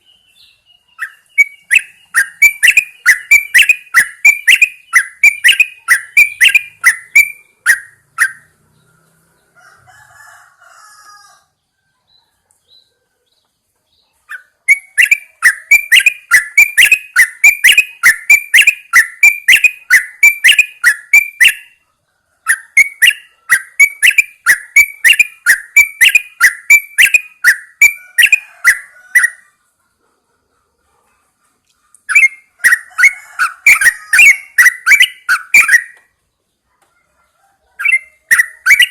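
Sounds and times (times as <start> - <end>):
bird calling sharp repeated notes: 0.0 - 8.9, 14.2 - 21.8, 22.4 - 29.6, 31.9 - 36.2, 37.8 - 38.9
faint soft bird chatter: 0.0 - 38.9.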